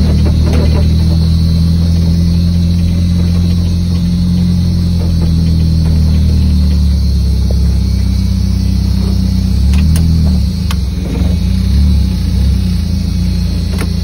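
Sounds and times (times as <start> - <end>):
car engine drone: 0.0 - 14.0
sharp clicks: 9.6 - 10.9.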